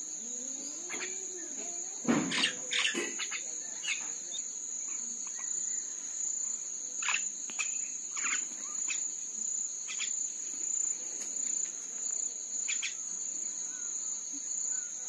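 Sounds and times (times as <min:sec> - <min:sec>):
high-pitched insect drone: 0:00.0 - 0:15.0
bird chirps: 0:07.0 - 0:09.1, 0:09.9 - 0:10.2.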